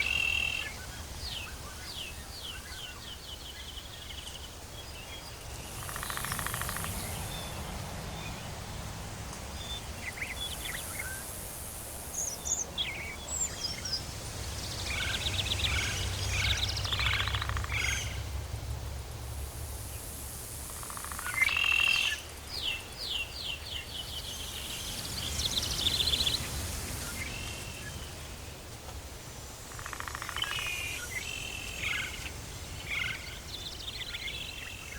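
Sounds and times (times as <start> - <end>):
low rumble and hiss: 0.0 - 34.9
buzzy insect trills: 5.4 - 7.8, 19.4 - 22.4
birds chirping and whistling: 21.4 - 28.2.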